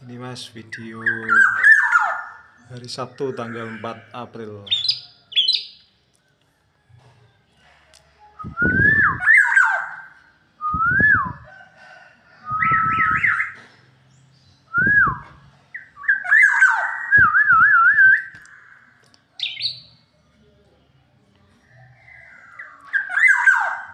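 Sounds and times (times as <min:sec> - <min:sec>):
bird singing fluty whistles: 0:04.7 - 0:05.8, 0:08.4 - 0:11.4, 0:12.4 - 0:13.6, 0:14.7 - 0:18.6, 0:19.4 - 0:19.9.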